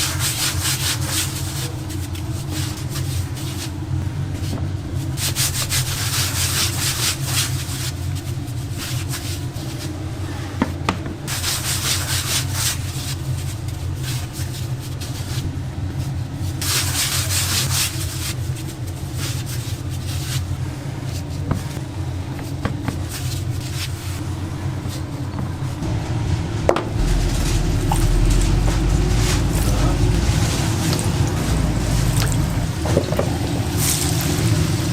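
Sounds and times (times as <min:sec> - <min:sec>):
steady low hum: 0:24.1 - 0:34.9.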